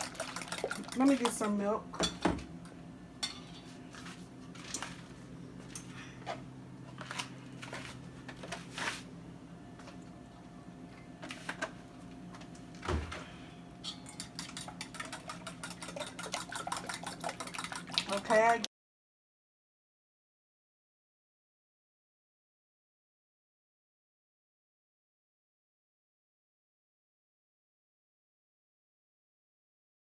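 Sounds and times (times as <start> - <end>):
fork beating eggs in a bowl: 0.0 - 1.6, 13.9 - 18.7
dishes and utensils clinking: 0.0 - 2.4, 3.2 - 3.8, 13.1 - 18.6.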